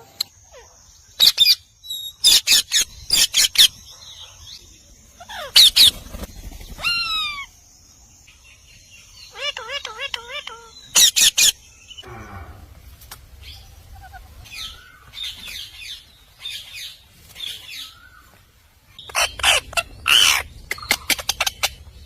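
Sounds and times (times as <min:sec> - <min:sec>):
parrot chirping: 0:01.2 - 0:03.8, 0:09.3 - 0:11.6, 0:19.0 - 0:22.0
parrot squawking: 0:19.1 - 0:21.8.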